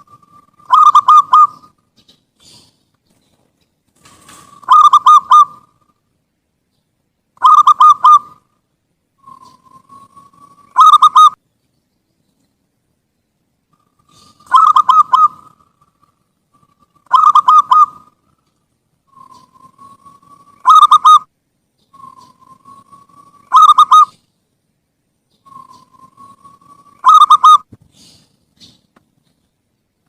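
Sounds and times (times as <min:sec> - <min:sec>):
dove cooing: 0:00.0 - 0:02.8, 0:04.1 - 0:06.0, 0:07.4 - 0:08.5, 0:09.2 - 0:11.4, 0:13.7 - 0:18.4, 0:19.1 - 0:21.3, 0:21.9 - 0:24.2, 0:25.4 - 0:28.9.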